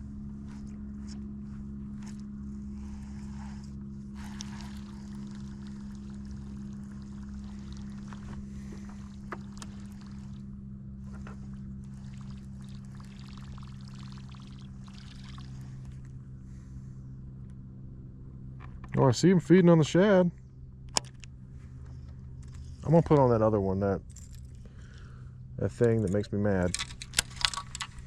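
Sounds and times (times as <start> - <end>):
boat motor humming: 0.0 - 28.0.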